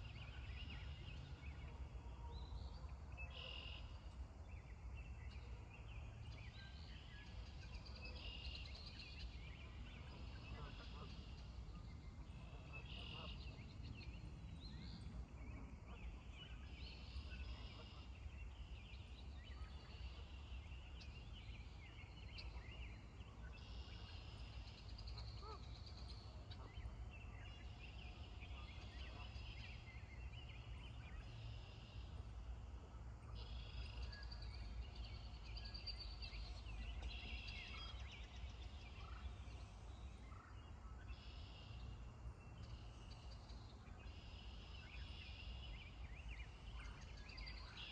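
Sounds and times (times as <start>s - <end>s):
faint bird calls: 7.8s - 13.6s.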